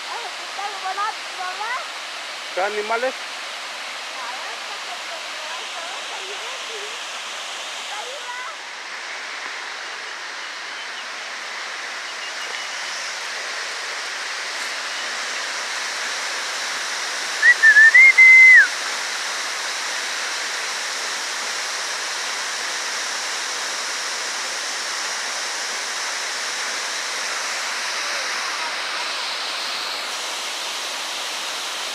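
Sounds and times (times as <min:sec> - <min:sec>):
waterfall rushing: 0:00.0 - 0:31.9
loud wavering whistle: 0:17.4 - 0:18.8.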